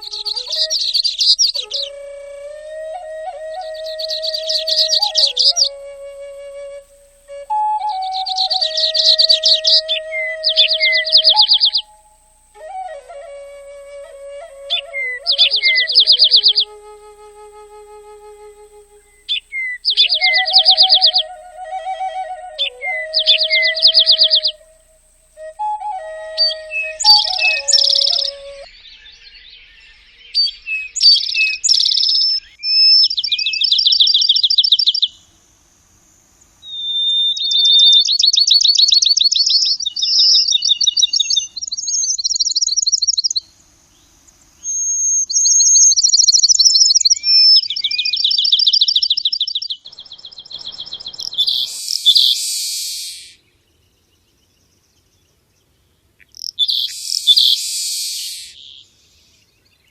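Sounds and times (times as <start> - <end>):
bird trills and chirps: 0.0 - 2.0, 3.5 - 5.8, 7.9 - 12.2, 14.7 - 16.7, 19.0 - 24.6, 26.4 - 35.2, 36.6 - 53.5, 56.2 - 59.9
harsh raspy bird calls: 44.6 - 53.4, 56.2 - 58.8.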